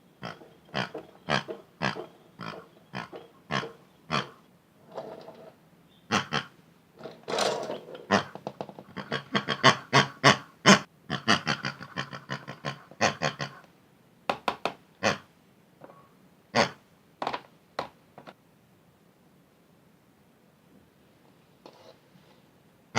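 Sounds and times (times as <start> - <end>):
sharp knocks and clicks: 14.3 - 14.8.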